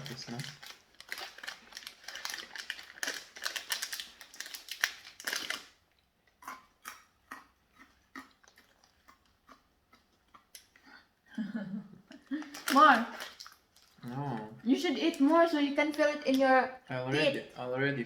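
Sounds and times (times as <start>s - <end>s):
crunchy snack being chewed: 0.0s - 10.8s, 12.4s - 14.4s.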